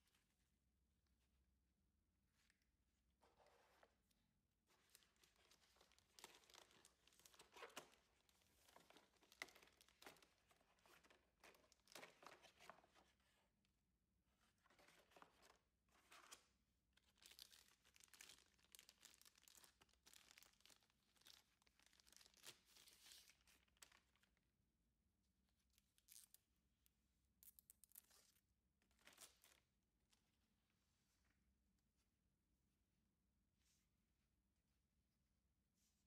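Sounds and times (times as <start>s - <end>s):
packaging rustling and crinkling: 4.8s - 13.0s, 17.1s - 24.3s.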